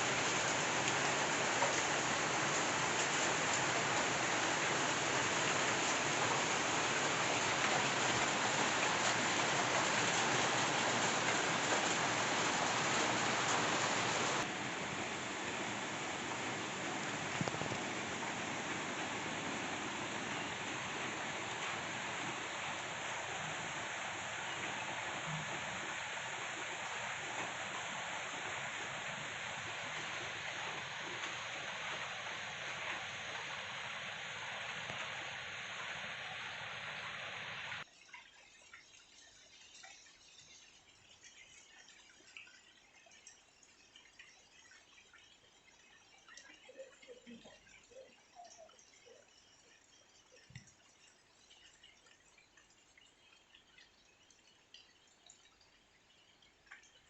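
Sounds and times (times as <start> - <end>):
steady rainfall: 0.0 - 57.0.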